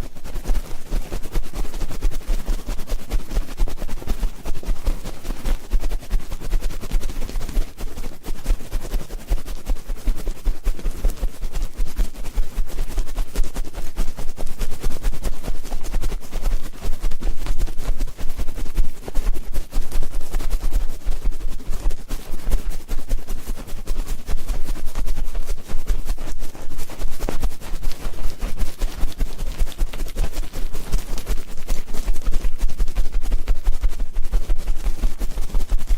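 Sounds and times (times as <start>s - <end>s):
scratching and rustling on microphone: 0.0s - 35.9s.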